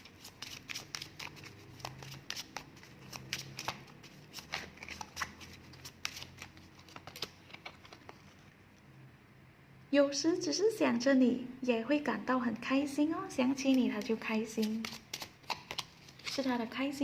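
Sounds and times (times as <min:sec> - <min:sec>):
cards being shuffled: 0:00.0 - 0:08.5, 0:13.6 - 0:16.6.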